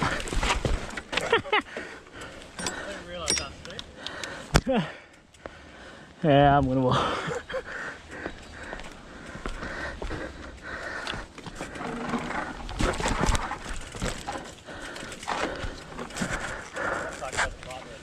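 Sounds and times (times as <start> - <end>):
footsteps on dirt trail: 0.0 - 2.9, 6.4 - 18.0
mountain bike rattling: 0.0 - 6.0, 6.7 - 18.0.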